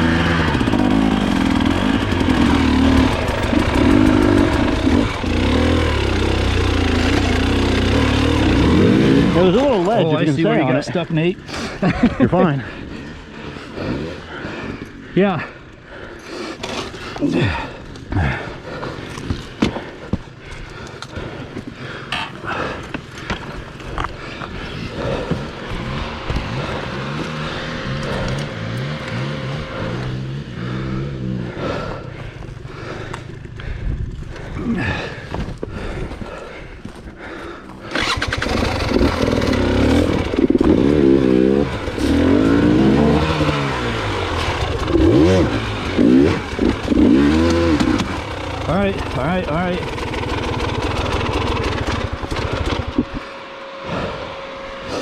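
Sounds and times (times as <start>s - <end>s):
low engine note: 0.0s - 10.1s, 24.2s - 36.4s, 37.2s - 55.0s
knocks and scuffs on rocky ground: 35.1s - 37.8s.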